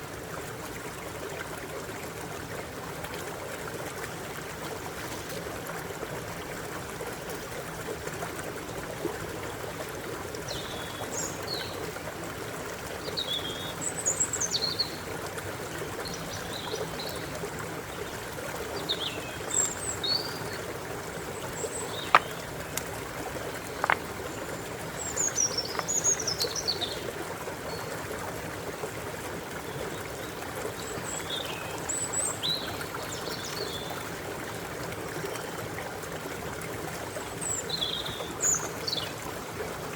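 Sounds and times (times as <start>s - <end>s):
stream water running: 0.0s - 39.9s
birds chirping: 18.8s - 27.9s
sharp clicks: 23.7s - 24.1s.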